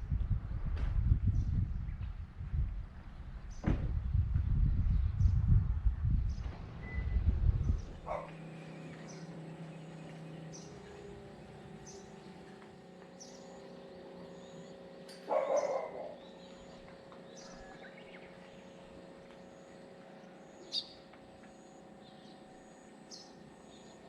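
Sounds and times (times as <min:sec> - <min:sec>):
faint steady hum: 0:00.0 - 0:24.0
birds chirping: 0:06.2 - 0:24.0.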